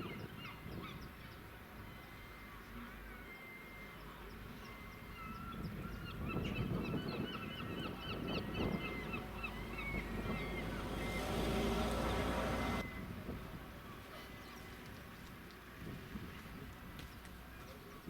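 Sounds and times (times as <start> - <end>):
birds chirping: 5.1 - 12.8
low outdoor rumble: 8.0 - 13.8.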